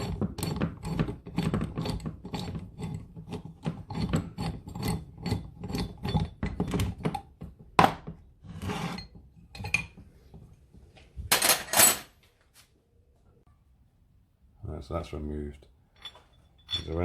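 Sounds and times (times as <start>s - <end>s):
metal parts clattering: 11.3s - 12.1s, 16.0s - 17.0s.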